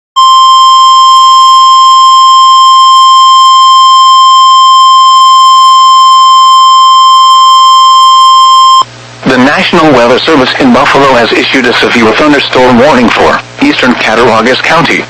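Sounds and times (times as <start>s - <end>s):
loud steady alarm tone: 0.2s - 8.9s.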